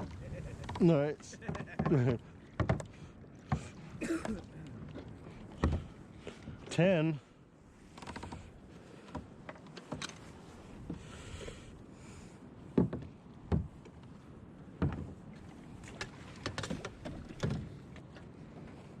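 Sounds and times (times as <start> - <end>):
irregular knocks and thumps: 0.6 - 2.9, 5.6 - 5.9, 12.8 - 13.8
light handling noise: 8.0 - 11.0.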